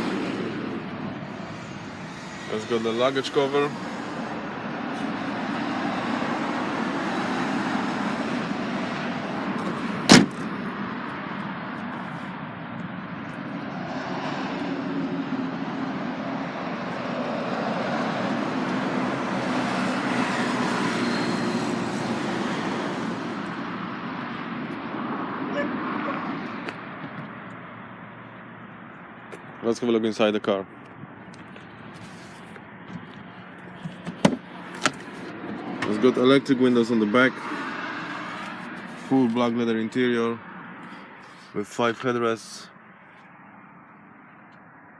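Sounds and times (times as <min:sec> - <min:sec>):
road traffic passing: 0:00.0 - 0:44.9
sharp slam: 0:10.1 - 0:10.5.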